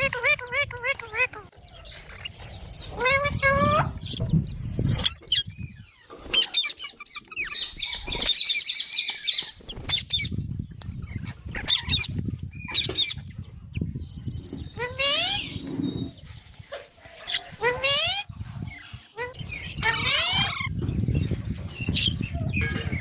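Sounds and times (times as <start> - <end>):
parrot squawking: 14.8 - 15.6.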